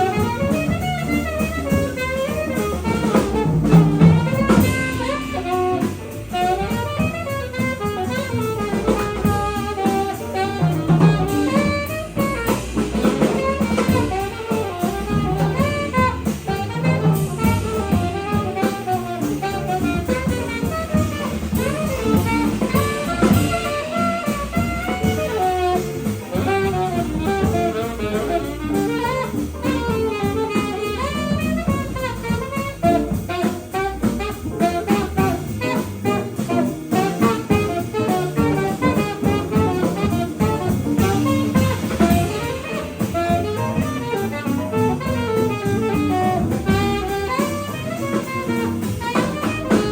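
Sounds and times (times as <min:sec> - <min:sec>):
alto saxophone fast melodic lines: 0:00.0 - 0:49.9
bass: 0:00.0 - 0:49.9
drum kit: 0:00.0 - 0:49.9
piano: 0:00.0 - 0:49.9.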